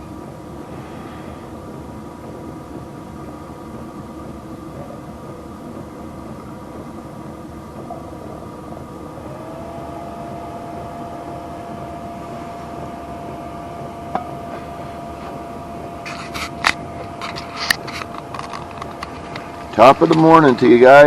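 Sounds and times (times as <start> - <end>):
heater humming and whining: 0.0 - 21.0
handling clicks and rustles: 16.0 - 21.0.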